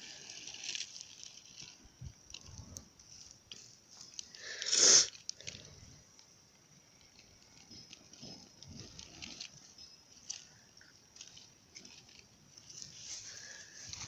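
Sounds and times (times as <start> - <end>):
crackly handling noises: 0.0 - 14.0
match striking and hissing: 4.3 - 5.3.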